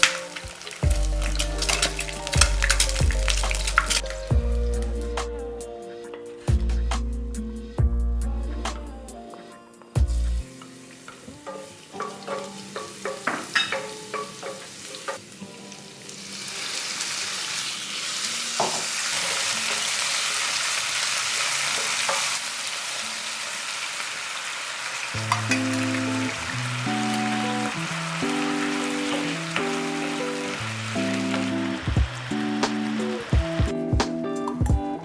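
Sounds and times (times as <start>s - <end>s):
food sizzling in hot oil: 0.0s - 5.2s, 5.9s - 34.6s.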